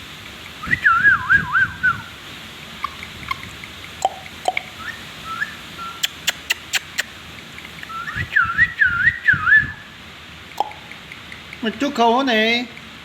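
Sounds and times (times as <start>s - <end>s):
parrot whistling: 0.6s - 2.1s, 2.8s - 7.1s, 7.8s - 9.9s, 10.6s - 11.0s
parrot clicks: 2.8s - 4.8s, 6.0s - 8.0s, 10.5s - 11.8s.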